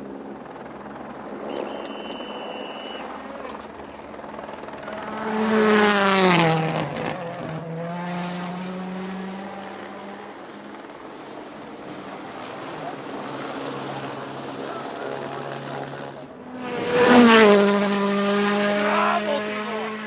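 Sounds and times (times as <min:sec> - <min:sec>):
rally car engine passing: 0:04.8 - 0:10.7, 0:11.4 - 0:20.0.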